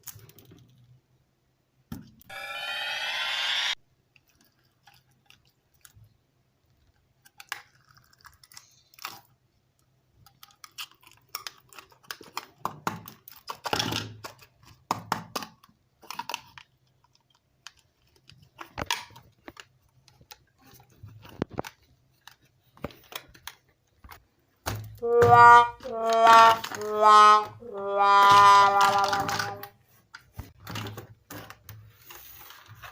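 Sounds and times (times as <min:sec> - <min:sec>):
loud musical tone: 0:02.3 - 0:03.8, 0:25.0 - 0:29.7.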